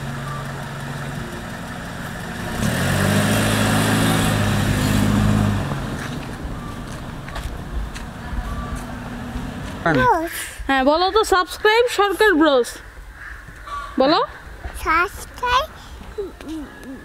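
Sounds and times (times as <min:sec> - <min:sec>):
car engine idling and revving: 0:00.0 - 0:10.5.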